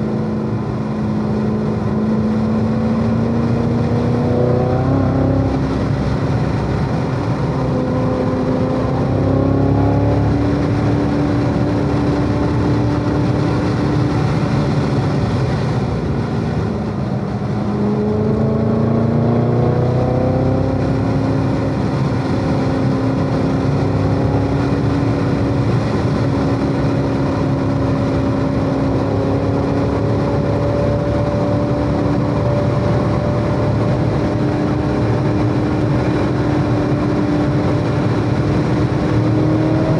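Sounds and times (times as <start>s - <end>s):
car engine revving under load: 0.0s - 39.9s.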